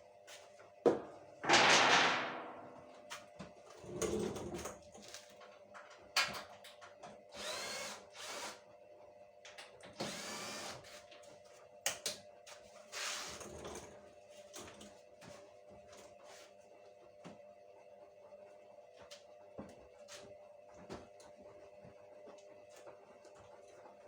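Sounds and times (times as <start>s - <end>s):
power drill running: 7.4s - 8.6s, 10.0s - 10.8s.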